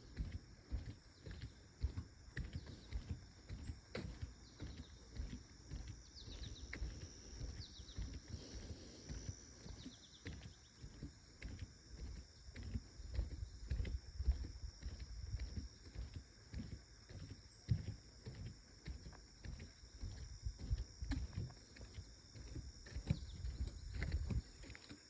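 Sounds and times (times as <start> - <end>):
footsteps on a trail: 0.0 - 25.0
insect drone: 4.4 - 25.0.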